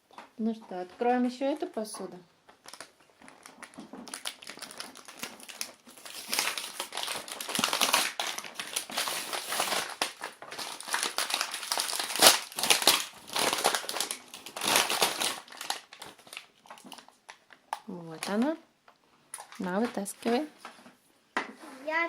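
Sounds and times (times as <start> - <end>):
plastic packaging crinkling: 2.4 - 18.6, 19.3 - 20.8.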